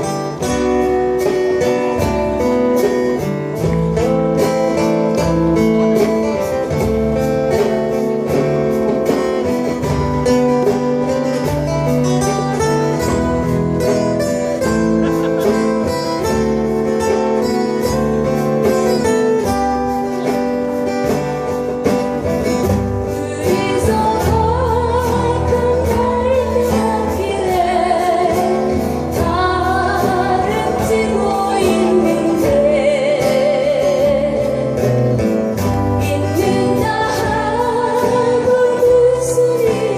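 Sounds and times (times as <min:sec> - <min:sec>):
strummed acoustic guitar: 0:00.0 - 0:39.9
person singing with vibrato: 0:23.1 - 0:35.0, 0:35.9 - 0:39.9.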